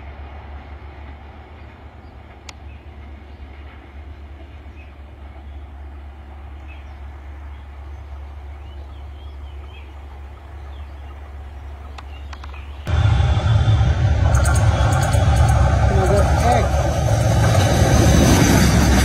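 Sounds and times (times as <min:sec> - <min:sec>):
train rumbling along track: 0:00.0 - 0:19.0
faint clicks: 0:11.8 - 0:12.7.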